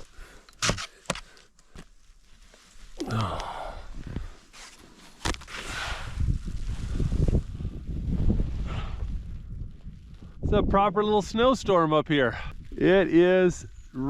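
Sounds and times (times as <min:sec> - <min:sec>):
person sighing: 0:03.0 - 0:04.0
wind noise on microphone: 0:05.5 - 0:14.0.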